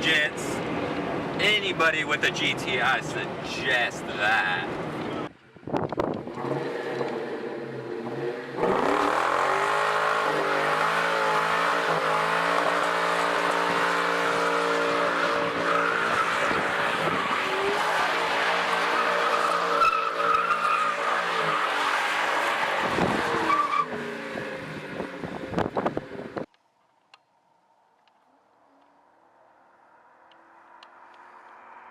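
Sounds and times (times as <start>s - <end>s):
engine at high revs: 6.2s - 19.9s
tyres squealing: 12.5s - 24.2s.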